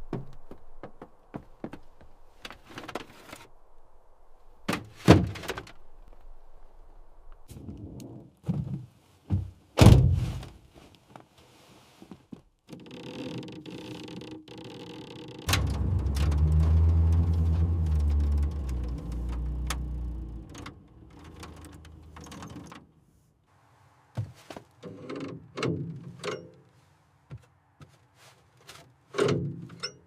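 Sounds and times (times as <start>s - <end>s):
heavy low mechanical rumble: 15.5s - 22.5s
sharp metal knocks and clunks: 29.1s - 30.0s.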